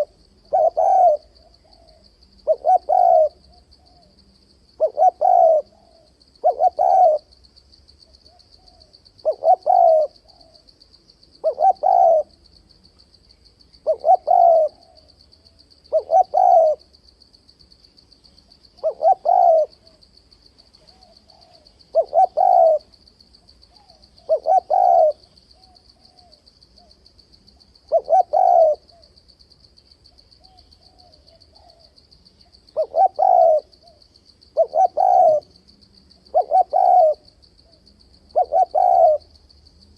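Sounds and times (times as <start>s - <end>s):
dove cooing: 0.0s - 4.2s, 4.8s - 7.4s, 8.2s - 10.7s, 11.4s - 12.4s, 13.8s - 15.2s, 15.9s - 16.9s, 18.8s - 20.0s, 20.8s - 23.0s, 23.7s - 29.1s, 30.4s - 32.0s, 32.7s - 34.0s, 34.6s - 35.6s, 36.2s - 39.4s.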